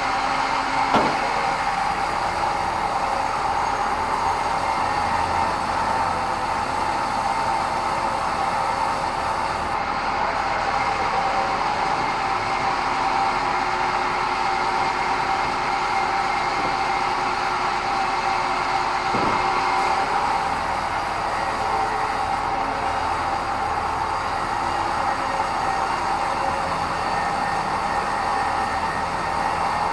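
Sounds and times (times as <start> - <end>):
low machine tone: 0.0 - 29.9
bandsaw running with whine: 0.9 - 9.8, 19.7 - 29.9.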